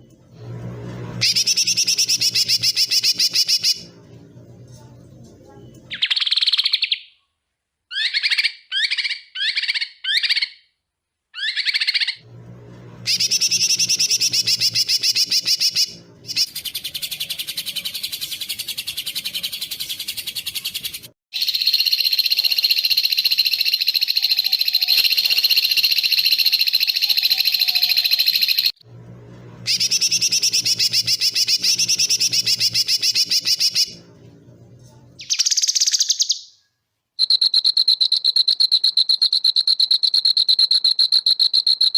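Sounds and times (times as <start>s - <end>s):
low hum: 0.0s - 5.9s, 12.2s - 18.0s, 28.8s - 35.2s
songbird calls and trills: 35.2s - 36.5s.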